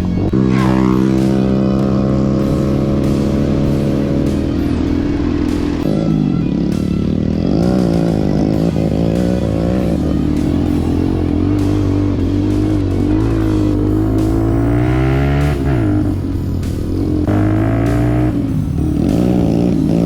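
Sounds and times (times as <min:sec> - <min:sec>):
mini bike engine revving: 0:00.0 - 0:20.0
rock music with guitar: 0:00.0 - 0:20.0.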